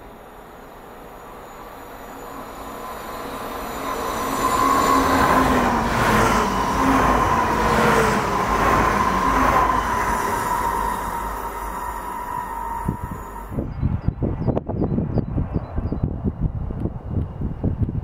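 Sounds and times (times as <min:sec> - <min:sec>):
high whine: 0:00.0 - 0:14.6
train passing with rushing rail noise: 0:00.0 - 0:18.0.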